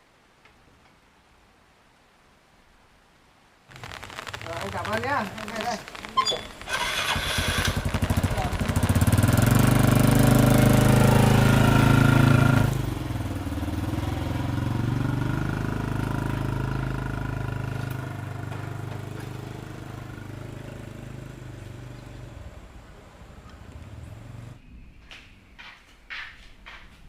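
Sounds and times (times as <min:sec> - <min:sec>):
motorcycle engine running: 0:06.6 - 0:24.6.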